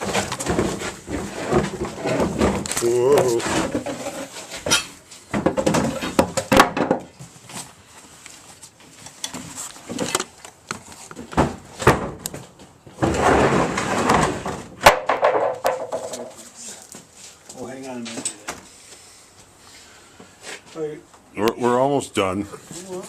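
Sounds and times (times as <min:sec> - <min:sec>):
knocks and clunks: 0:00.0 - 0:07.1, 0:11.2 - 0:16.4.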